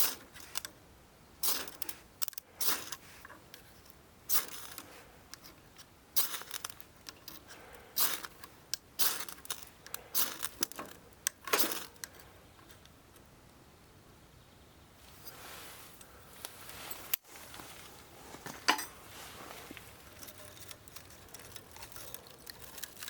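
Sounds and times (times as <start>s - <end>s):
wood fire crackling: 1.4s - 12.9s, 19.0s - 23.0s.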